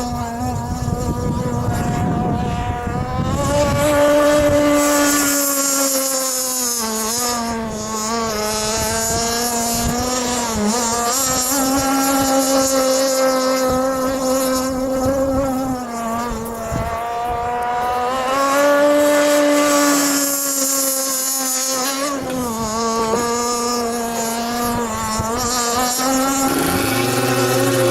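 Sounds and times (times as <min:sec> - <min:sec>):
model boat engine buzzing: 0:00.0 - 0:27.9.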